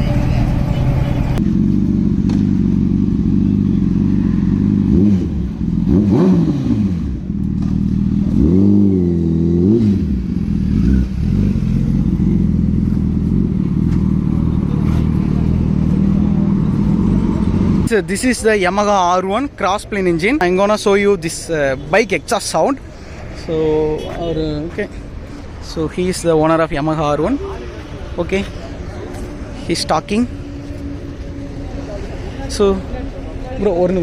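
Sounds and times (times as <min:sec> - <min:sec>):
motorcycle engine revving: 0:00.0 - 0:18.2, 0:28.6 - 0:34.0.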